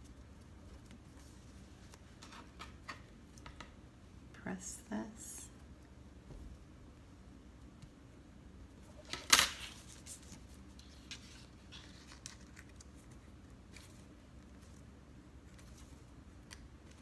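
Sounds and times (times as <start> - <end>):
paper rustling: 9.1 - 14.9.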